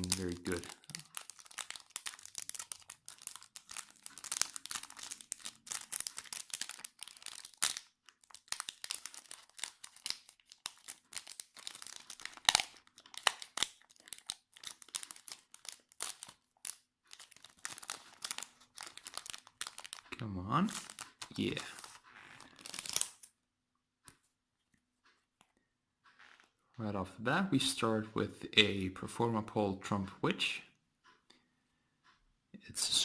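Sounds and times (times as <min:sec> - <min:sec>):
foil wrapper crinkling and tearing: 0:00.0 - 0:20.0, 0:20.7 - 0:23.3.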